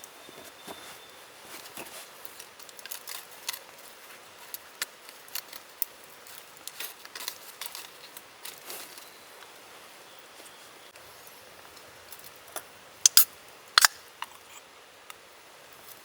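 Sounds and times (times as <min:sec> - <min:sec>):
steady fire hiss: 0:00.0 - 0:16.0
campfire crackling and popping: 0:02.2 - 0:08.6, 0:11.6 - 0:14.4.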